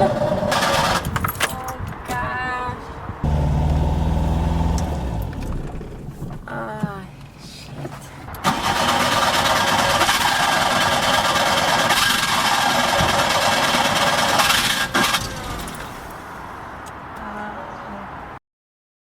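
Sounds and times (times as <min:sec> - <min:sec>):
car engine running: 0:03.2 - 0:06.7.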